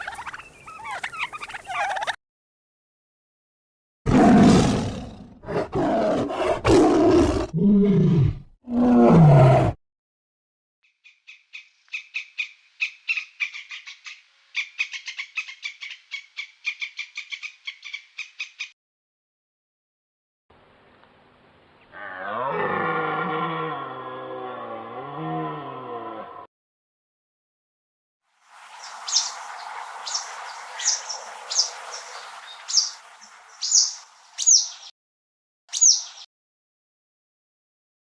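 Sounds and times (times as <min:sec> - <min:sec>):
large animal roaring and growling: 0:04.1 - 0:09.8, 0:21.9 - 0:26.5.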